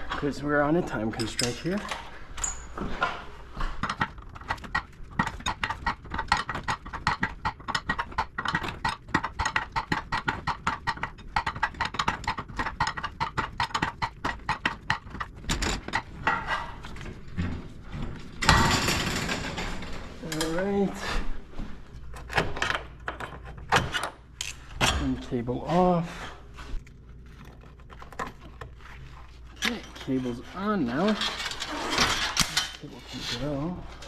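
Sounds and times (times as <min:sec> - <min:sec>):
rapid mechanical clicking: 0:03.8 - 0:16.1.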